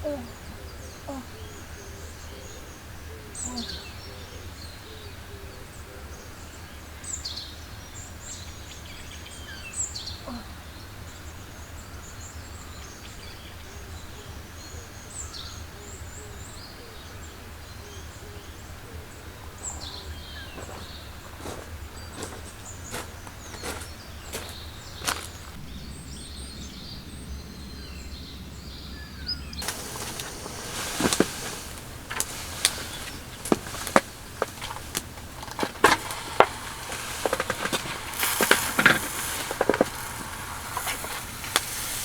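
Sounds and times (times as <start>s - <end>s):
birds chirping: 17.0s - 42.0s.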